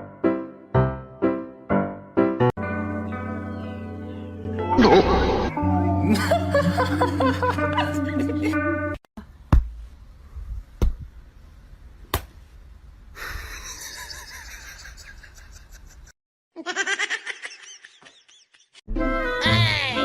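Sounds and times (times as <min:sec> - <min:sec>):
person laughing: 0:04.8 - 0:05.4, 0:06.0 - 0:08.7, 0:13.2 - 0:18.8.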